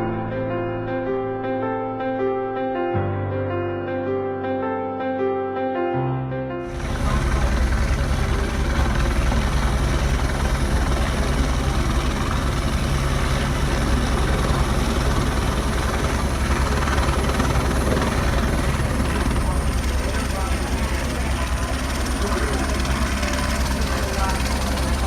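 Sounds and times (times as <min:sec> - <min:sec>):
piano tune: 0:00.0 - 0:25.0
helicopter rotor and turbine: 0:06.6 - 0:25.0.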